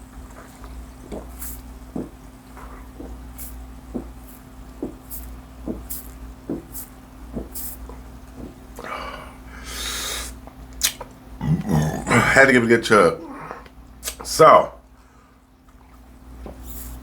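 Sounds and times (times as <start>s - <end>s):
faint steady hum: 0.0s - 17.0s
person gulping a drink: 10.8s - 12.5s.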